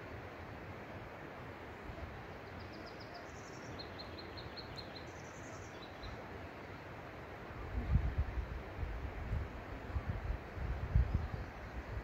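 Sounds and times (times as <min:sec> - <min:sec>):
songbird singing: 0:01.7 - 0:06.4, 0:10.9 - 0:12.0.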